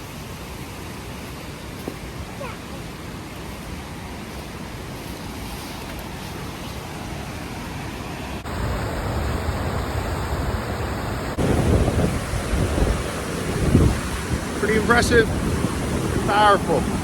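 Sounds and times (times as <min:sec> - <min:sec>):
waterfall rushing: 0:06.8 - 0:17.0.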